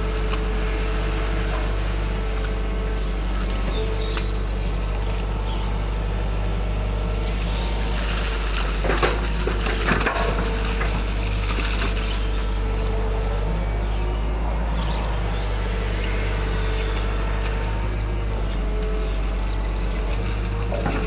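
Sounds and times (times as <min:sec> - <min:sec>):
excavator engine running: 0:00.0 - 0:21.0
cracking and crunching: 0:06.3 - 0:13.0.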